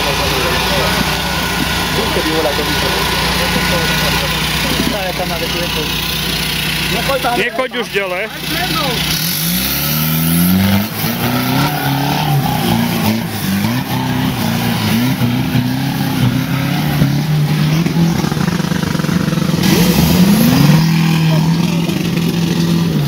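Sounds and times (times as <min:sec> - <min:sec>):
off-road engine revving: 0:00.0 - 0:23.0.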